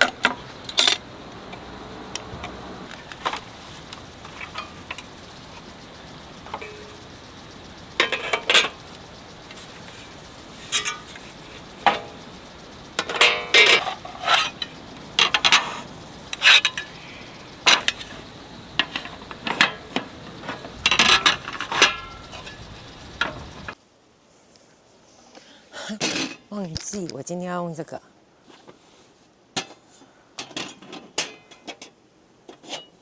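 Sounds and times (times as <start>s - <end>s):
metal tableware clinking: 0.0s - 23.8s.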